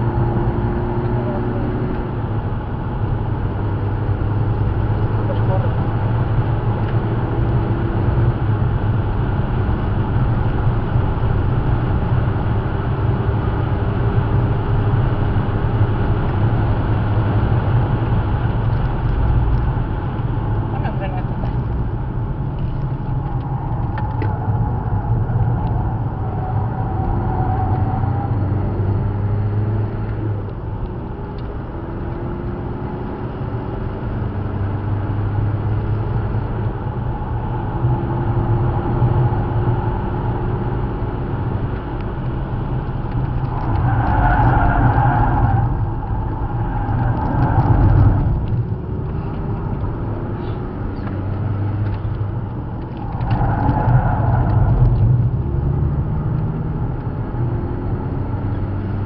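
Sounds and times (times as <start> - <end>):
car engine accelerating and slowing: 0.0 - 59.0.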